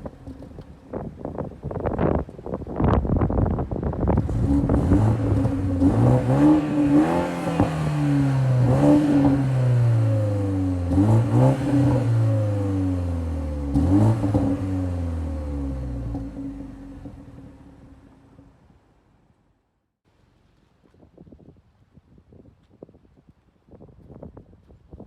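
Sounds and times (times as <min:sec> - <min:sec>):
car engine revving: 0:04.1 - 0:18.5.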